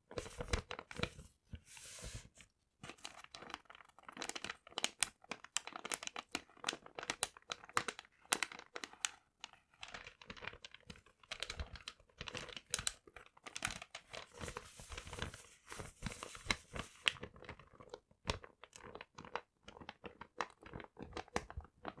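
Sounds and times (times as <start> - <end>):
paper crumpling and crinkling: 0.1 - 17.4.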